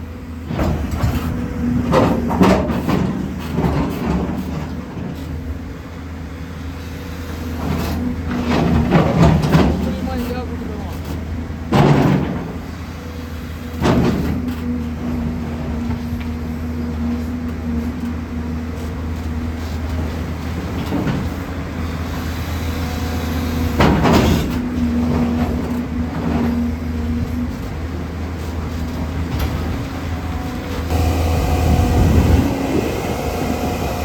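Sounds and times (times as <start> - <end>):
diesel engine under load: 0.0 - 34.0
hydraulic whine: 28.7 - 34.0.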